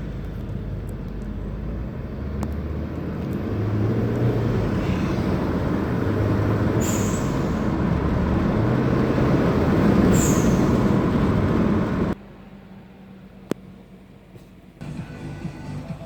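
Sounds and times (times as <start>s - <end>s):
turbocharged engine running hard: 0.0s - 12.2s
blow-off valve hiss-chirp: 6.7s - 7.8s, 10.0s - 11.0s.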